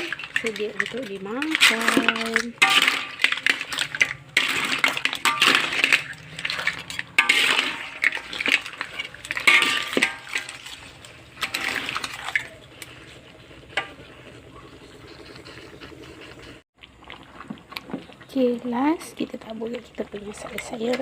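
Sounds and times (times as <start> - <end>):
metal utensil scraping a pan: 0.0 - 16.2.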